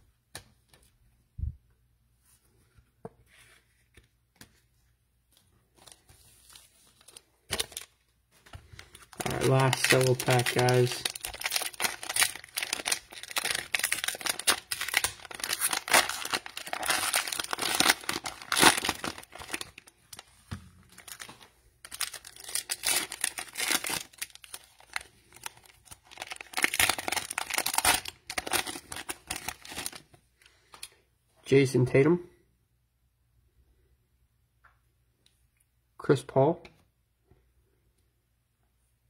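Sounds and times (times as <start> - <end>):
cellophane wrapper crinkling: 5.8 - 8.0, 8.7 - 30.1.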